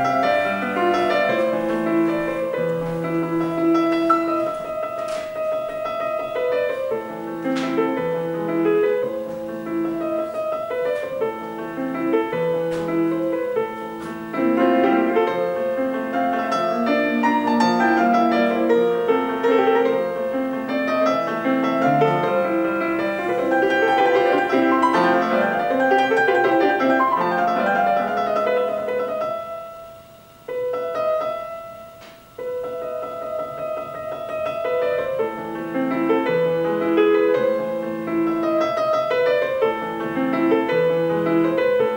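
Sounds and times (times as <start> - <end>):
piano music through small speaker: 0.0 - 41.9.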